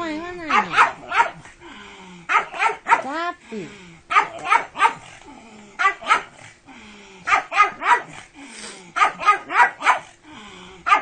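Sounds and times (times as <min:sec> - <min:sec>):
dog barking: 0:00.4 - 0:01.5, 0:02.3 - 0:03.2, 0:04.1 - 0:05.1, 0:05.8 - 0:06.4, 0:07.3 - 0:08.2, 0:09.0 - 0:10.1.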